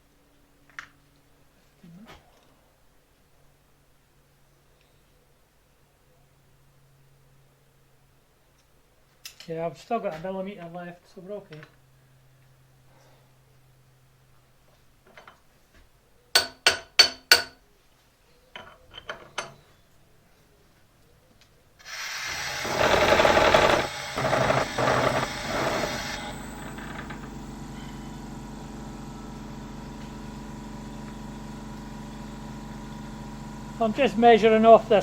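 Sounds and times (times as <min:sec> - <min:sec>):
milling machine running: 0:21.8 - 0:35.0.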